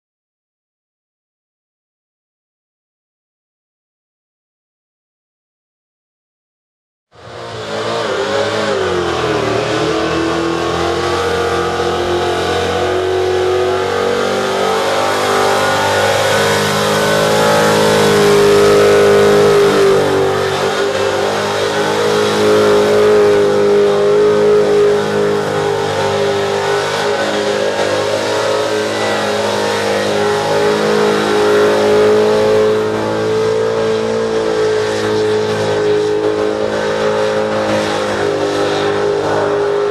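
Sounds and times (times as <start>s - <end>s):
car engine at high revs: 7.2s - 39.9s.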